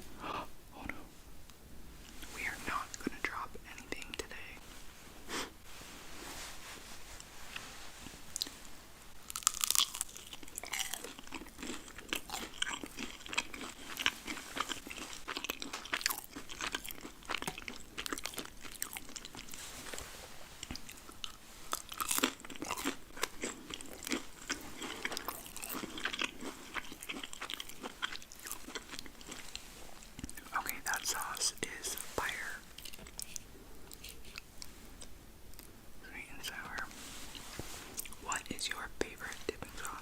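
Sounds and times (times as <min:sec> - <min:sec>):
person chewing crunchy food: 0:09.2 - 0:35.7, 0:36.5 - 0:38.5.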